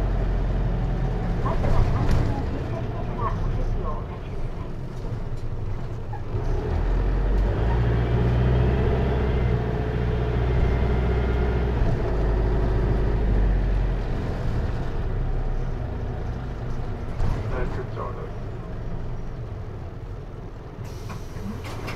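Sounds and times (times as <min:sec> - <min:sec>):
diesel minibus engine: 0:00.0 - 0:21.9.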